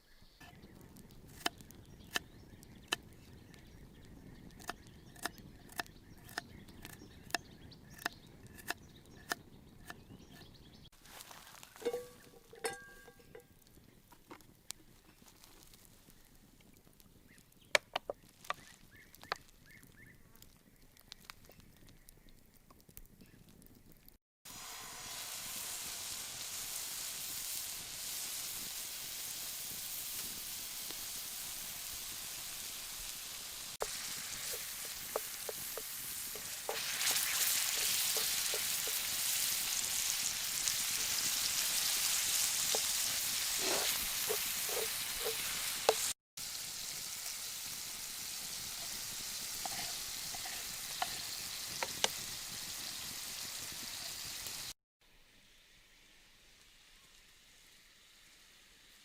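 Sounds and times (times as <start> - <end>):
food sizzling in a pan: 11.0 - 13.4, 24.5 - 54.8, 55.4 - 59.0
utensil tapping pan: 11.8 - 13.5, 33.8 - 39.1, 42.6 - 46.1, 49.6 - 52.2.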